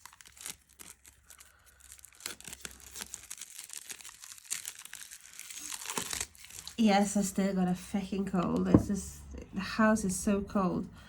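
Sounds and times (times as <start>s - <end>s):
plastic wrap crinkling and tearing: 0.0s - 6.8s.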